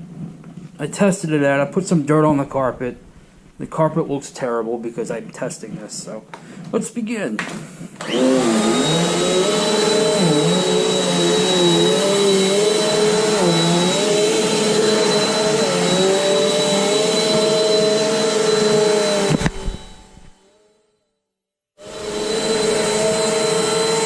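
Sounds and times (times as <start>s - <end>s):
vacuum cleaner motor whine: 7.5s - 20.8s, 21.8s - 24.0s.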